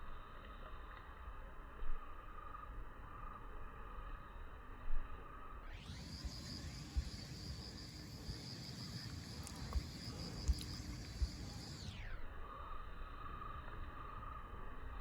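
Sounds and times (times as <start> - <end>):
faint outdoor background noise: 0.0 - 15.0
insect trilling: 5.8 - 14.4.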